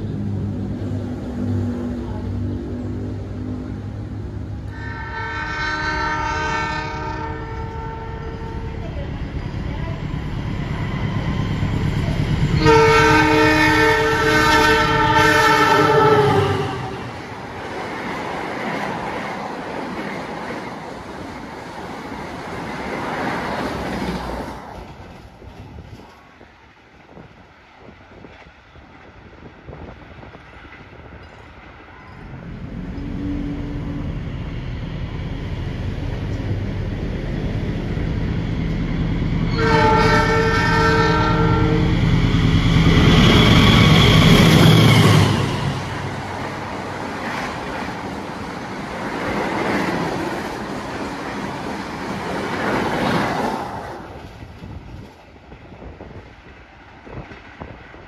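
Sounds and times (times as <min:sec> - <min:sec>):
diesel train engine hum: 0:00.0 - 0:58.0
train carriages running past: 0:00.0 - 0:58.0
train horn chord: 0:04.7 - 0:08.8, 0:12.6 - 0:17.2, 0:39.5 - 0:42.0.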